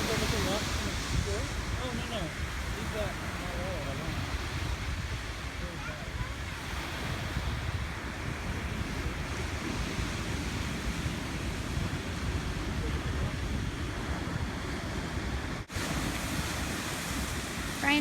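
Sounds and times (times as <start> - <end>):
ocean surf washing ashore: 0.0 - 18.0
wind buffeting the microphone: 0.0 - 18.0.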